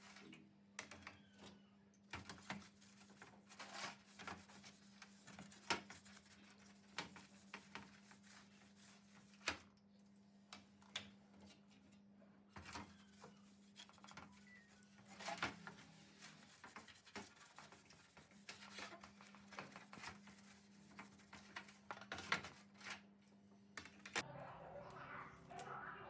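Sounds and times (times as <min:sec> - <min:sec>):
faint low hum: 0:22.8 - 0:26.0.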